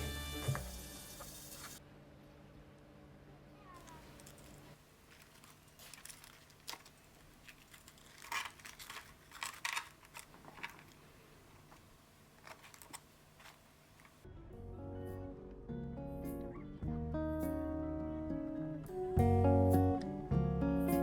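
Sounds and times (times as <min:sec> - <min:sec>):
small hard objects clicking: 0:03.8 - 0:11.0.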